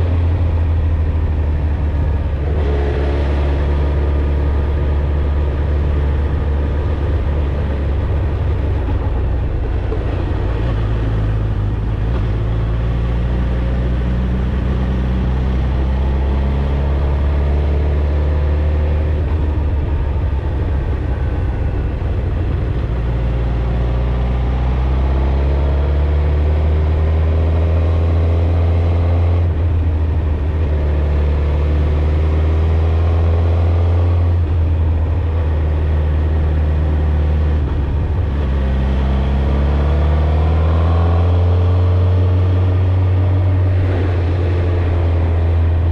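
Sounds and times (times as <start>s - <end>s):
motorcycle engine cruising: 0.0s - 45.9s.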